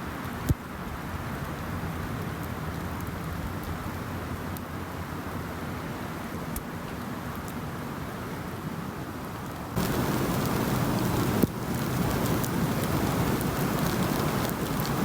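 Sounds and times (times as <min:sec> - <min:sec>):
wind rushing through woods: 0:00.0 - 0:15.0.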